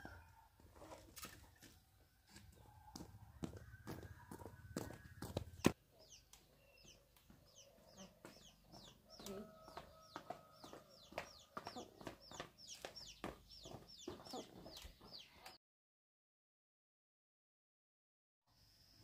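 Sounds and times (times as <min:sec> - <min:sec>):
birds chirping: 0:02.5 - 0:15.6.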